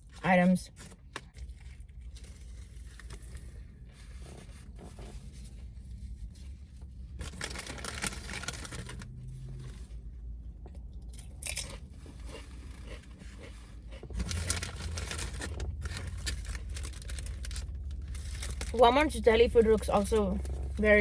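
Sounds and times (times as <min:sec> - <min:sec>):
paper wrapper crinkling and tearing: 0:07.1 - 0:09.8, 0:11.4 - 0:21.0.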